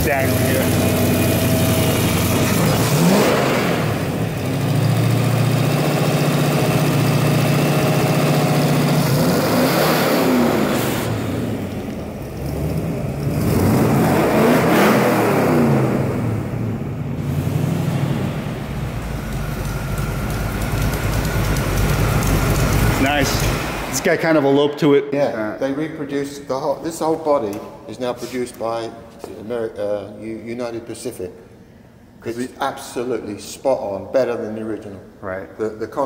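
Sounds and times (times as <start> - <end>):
engine revving: 0.0 - 24.0.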